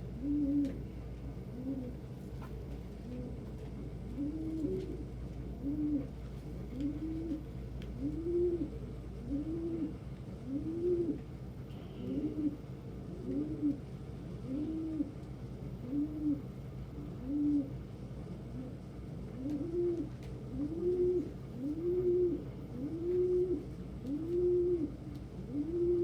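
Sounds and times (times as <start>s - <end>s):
pigeons cooing: 0.0s - 2.1s, 2.9s - 11.3s, 11.9s - 26.0s.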